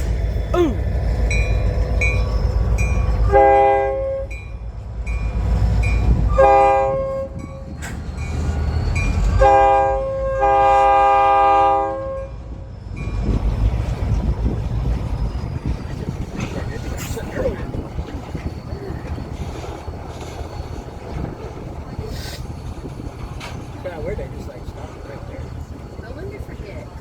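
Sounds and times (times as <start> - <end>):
train rumbling: 0.0 - 27.0
locomotive air horn blasts: 3.3 - 4.3, 9.4 - 12.3.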